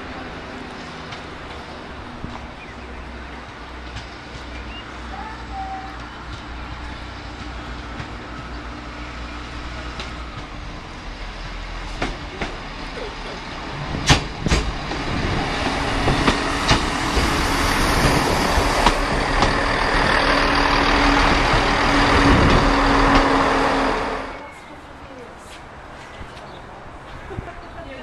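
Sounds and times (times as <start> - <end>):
diesel train engine: 0.0 - 25.8
wheels clacking over rail joints: 11.3 - 24.4.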